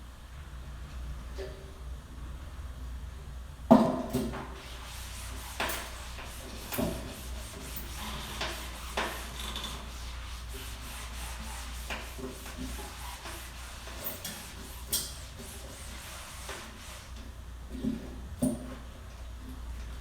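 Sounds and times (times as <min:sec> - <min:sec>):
rubbing sounds: 0:04.6 - 0:17.2.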